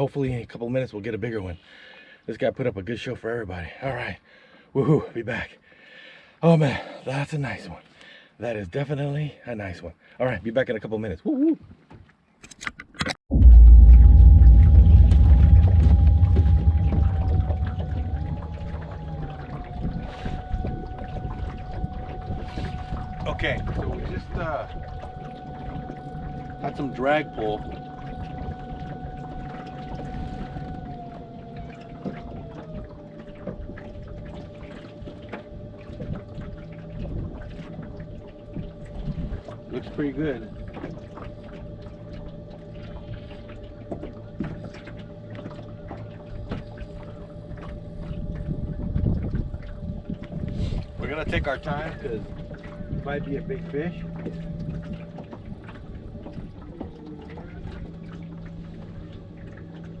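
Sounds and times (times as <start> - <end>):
low rumbling water: 0.0 - 12.4, 13.2 - 60.0
boat motor whining: 12.4 - 60.0
steady low hum: 13.3 - 60.0.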